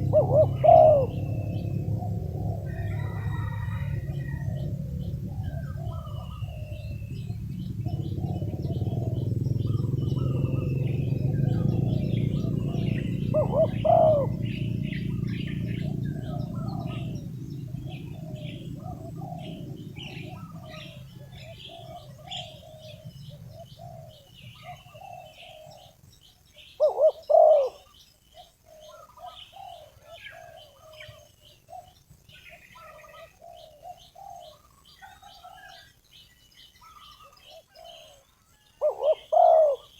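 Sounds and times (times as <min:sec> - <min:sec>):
low rumble: 0:00.0 - 0:24.6
dove cooing: 0:00.0 - 0:26.0, 0:26.6 - 0:35.9, 0:36.8 - 0:39.9
small birds chirping: 0:00.0 - 0:39.9.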